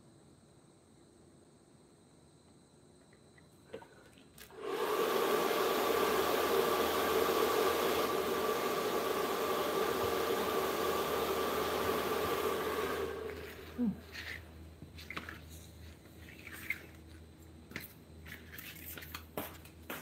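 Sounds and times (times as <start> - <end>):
blower motor running: 4.4 - 14.4.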